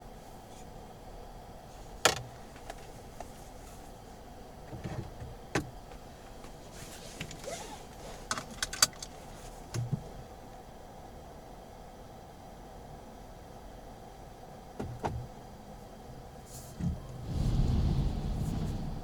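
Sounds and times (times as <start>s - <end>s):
faint steady hum: 0.0s - 19.0s
sharp clicks inside a car: 1.9s - 3.4s, 4.6s - 10.6s, 14.8s - 15.4s.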